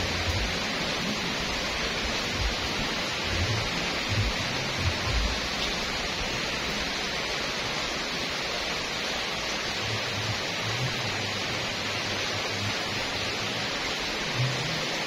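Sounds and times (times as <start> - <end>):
low rumbles: 0.0 - 5.9
rain on paved road: 0.0 - 15.0.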